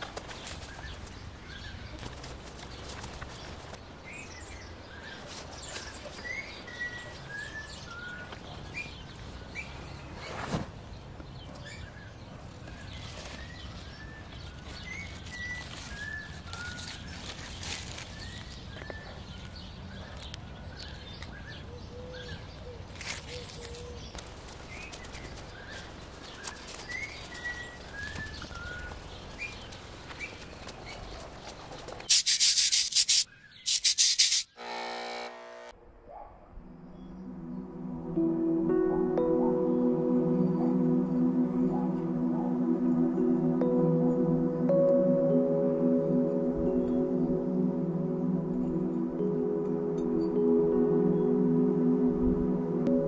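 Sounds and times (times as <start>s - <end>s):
songbird chirping phrase: 36.6s - 53.0s.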